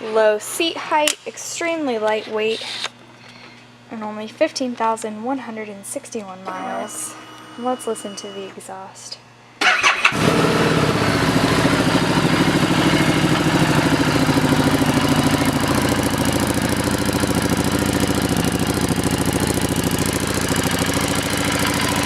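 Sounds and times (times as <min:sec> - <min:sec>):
motorcycle engine idling: 0:09.6 - 0:22.0.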